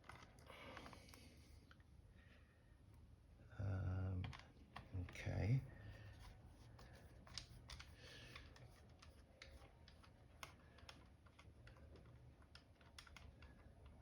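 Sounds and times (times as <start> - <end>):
light clicks of small parts: 4.2 - 5.4, 6.2 - 14.0.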